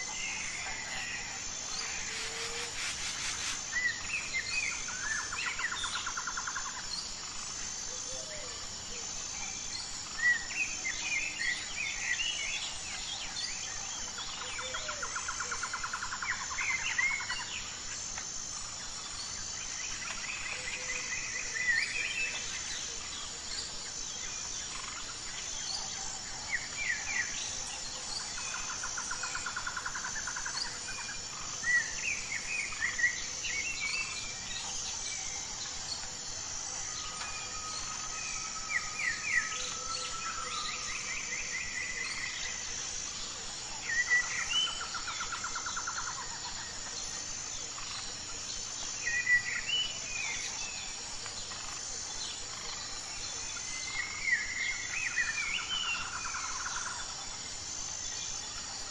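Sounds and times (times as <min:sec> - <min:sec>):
pulsing insect chirr: 0:00.0 - 0:58.9.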